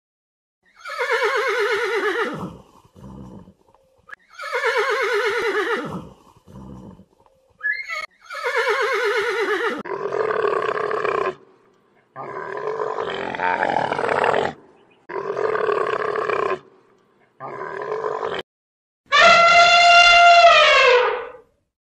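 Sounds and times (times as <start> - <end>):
horse whinnying: 0.7 - 3.4, 4.3 - 7.0, 7.6 - 9.9, 19.1 - 21.4
rough low animal call: 19.1 - 21.5.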